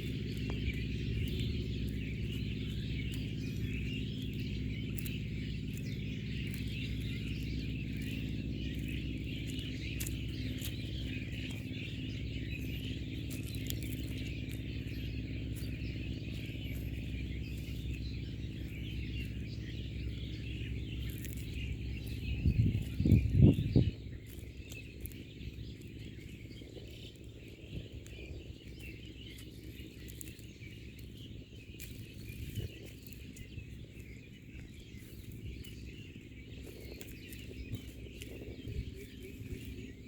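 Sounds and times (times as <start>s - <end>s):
birds chirping and twittering: 0.0s - 40.0s
steady low hum: 0.0s - 40.0s.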